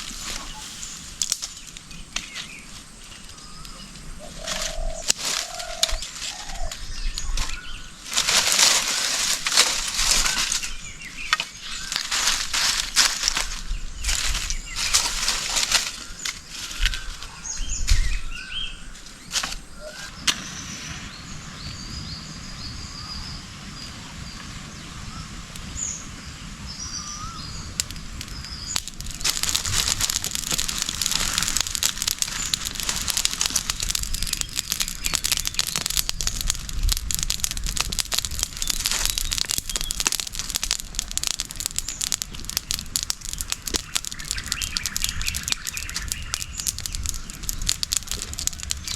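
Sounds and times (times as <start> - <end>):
birds chirping and calling: 0.2 - 8.0, 10.0 - 24.4, 41.2 - 48.9
eggs sizzling while frying: 3.4 - 17.1, 27.2 - 48.9.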